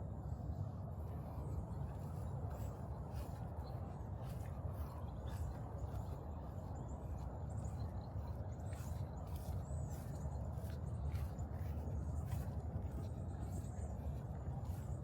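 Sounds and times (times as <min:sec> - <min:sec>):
wind rumble on microphone: 0:00.0 - 0:15.0
crunching footsteps: 0:08.7 - 0:14.9.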